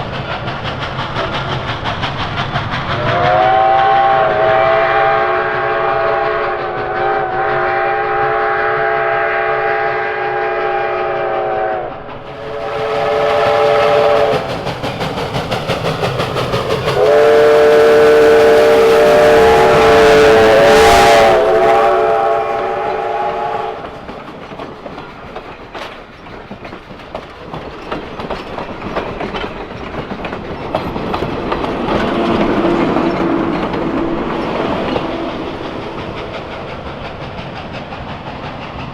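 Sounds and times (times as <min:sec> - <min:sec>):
steam locomotive chime whistle: 0:03.0 - 0:14.6, 0:17.0 - 0:23.9
wheels clattering on rail joints: 0:20.8 - 0:38.9.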